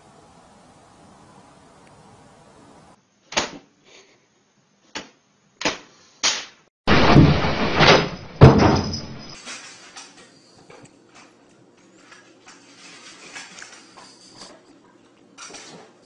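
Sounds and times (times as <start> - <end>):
sharp bang: 6.4 - 9.4
knocks: 6.9 - 9.4
loud rattling clatter: 6.9 - 9.6.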